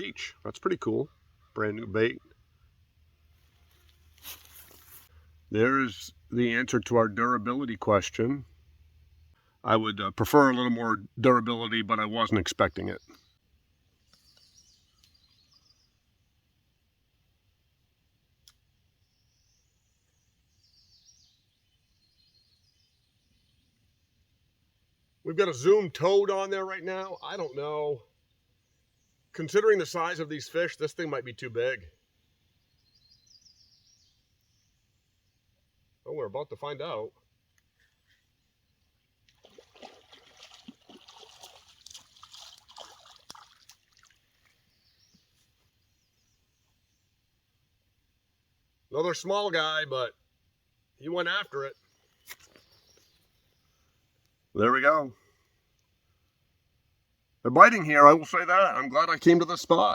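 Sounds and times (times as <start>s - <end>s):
faint bird chirps: 0.0s - 2.9s, 12.6s - 16.4s, 18.4s - 24.4s, 31.8s - 39.1s, 51.0s - 56.3s
fish splashing in water: 39.3s - 44.6s.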